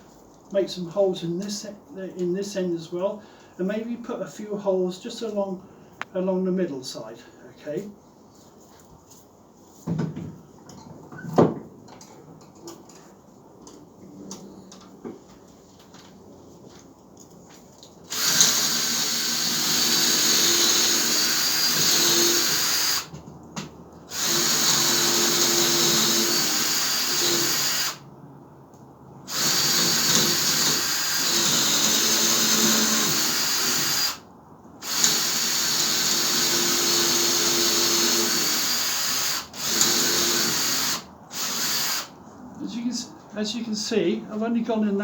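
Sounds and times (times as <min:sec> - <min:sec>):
power drill boring into log: 0:18.1 - 0:23.1, 0:24.1 - 0:28.0, 0:29.3 - 0:34.2, 0:34.8 - 0:42.1.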